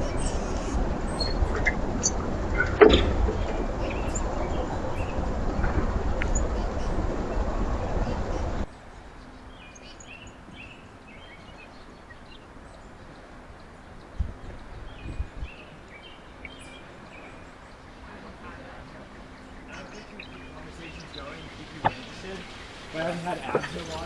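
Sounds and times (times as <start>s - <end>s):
dull low thumps: 0.0s - 8.7s
small birds chirping: 0.0s - 24.0s.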